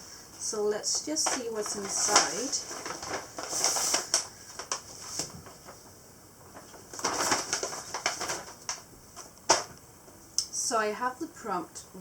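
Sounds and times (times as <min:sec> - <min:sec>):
paper rustling and crinkling: 0:00.8 - 0:09.8.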